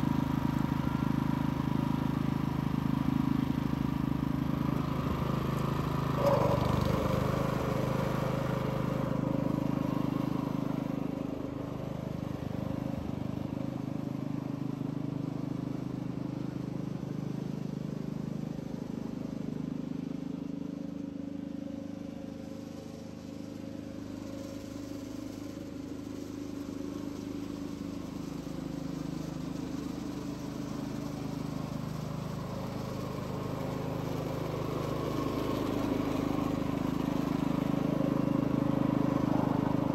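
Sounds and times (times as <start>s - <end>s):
mower engine running: 0.0s - 39.9s.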